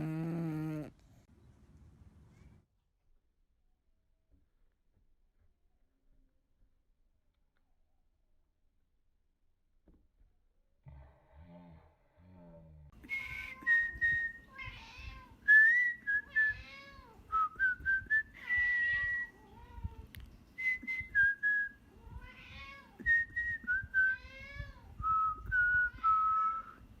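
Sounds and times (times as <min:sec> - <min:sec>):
person whistling: 0:13.1 - 0:14.4, 0:20.6 - 0:21.7, 0:25.0 - 0:26.8.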